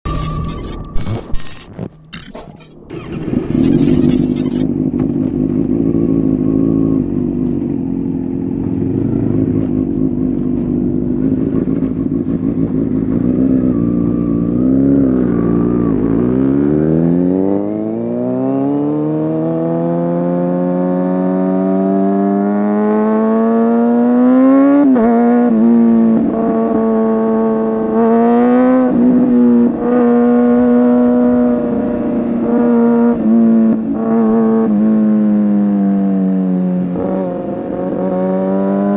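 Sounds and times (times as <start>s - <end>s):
motorcycle engine revving: 0.0s - 26.2s, 26.8s - 35.8s.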